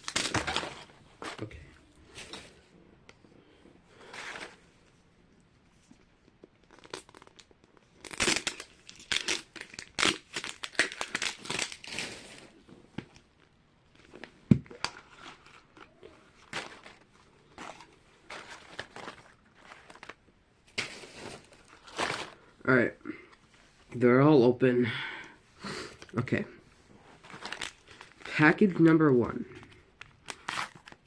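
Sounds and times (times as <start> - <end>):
plastic packets crinkling and tearing: 0.0 - 1.5, 6.4 - 12.6, 13.4 - 22.5, 27.2 - 28.6, 29.5 - 31.0.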